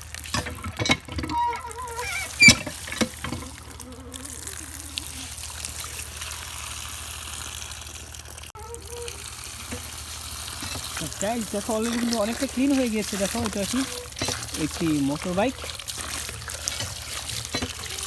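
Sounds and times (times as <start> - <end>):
knocks and splashes: 0.0 - 7.7, 8.4 - 18.0
water pouring and trickling: 0.0 - 18.0.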